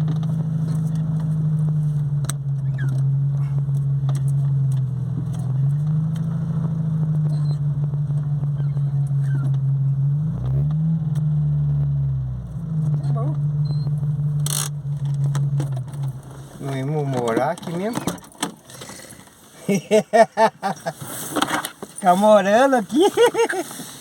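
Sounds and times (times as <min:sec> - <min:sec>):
car engine droning: 0:00.0 - 0:19.5.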